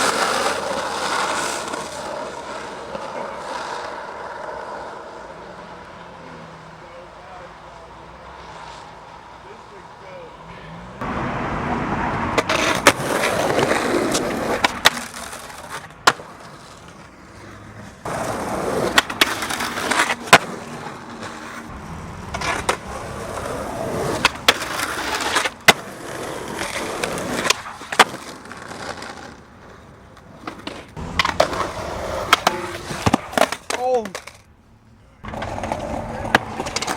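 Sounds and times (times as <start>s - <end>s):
skateboard clacking: 0.0s - 5.8s, 12.2s - 34.5s, 35.2s - 36.9s
skateboard wheels rolling: 0.0s - 36.9s.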